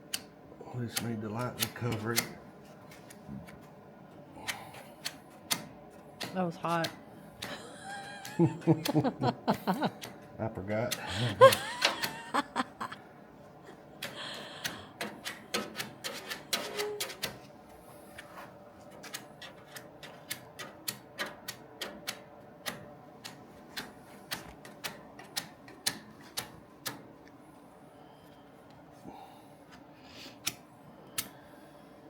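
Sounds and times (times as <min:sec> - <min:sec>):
sharp clicks and light taps: 0:04.5 - 0:07.6, 0:18.2 - 0:27.4.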